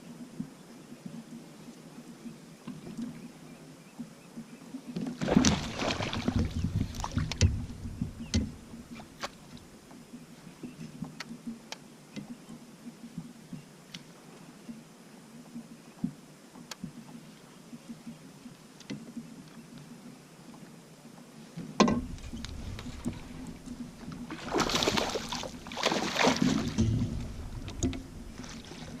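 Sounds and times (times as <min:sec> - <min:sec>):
water splashing and handling noise: 0:05.0 - 0:09.7, 0:21.8 - 0:29.0
sharp clicks and knocks: 0:06.4 - 0:08.6, 0:26.5 - 0:28.1.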